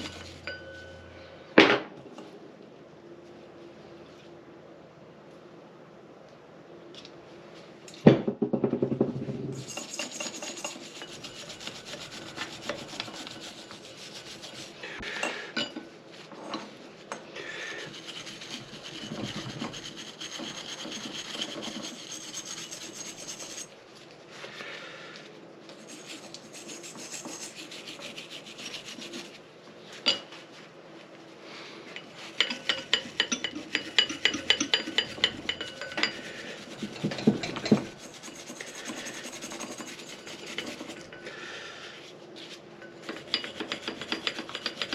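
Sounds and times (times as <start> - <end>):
hand scrubbing engine parts: 0.0 - 0.4, 9.6 - 14.9, 17.5 - 23.8, 25.7 - 29.4, 32.0 - 41.2.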